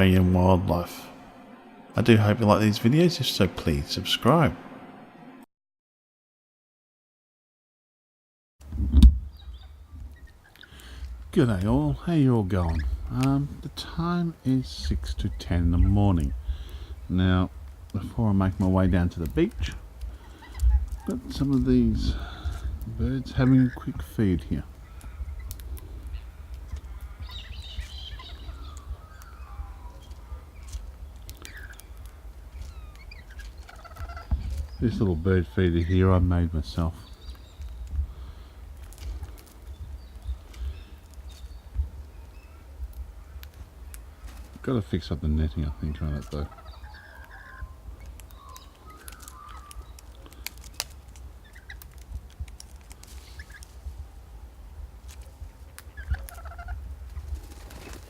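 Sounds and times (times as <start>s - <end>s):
low rumble: 0.0s - 5.5s
steady low rumble: 0.0s - 5.5s, 10.8s - 46.2s
birds chirping and calling: 9.3s - 52.0s, 52.8s - 53.9s, 55.2s - 58.0s
beaks pecking at seed: 9.4s - 54.0s, 55.0s - 58.0s.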